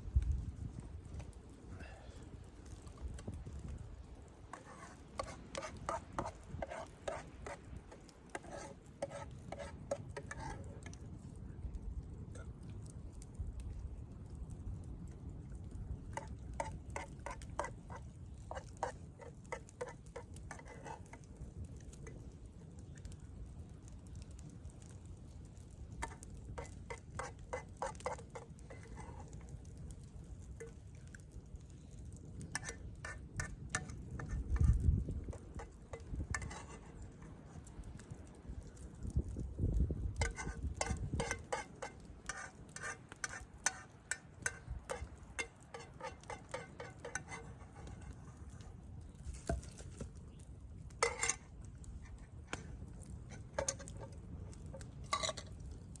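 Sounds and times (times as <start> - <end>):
spoon scraping a dish: 4.5 - 11.0, 16.1 - 21.3, 26.0 - 29.4, 32.4 - 37.7, 40.2 - 48.6, 51.0 - 51.5, 52.1 - 55.6.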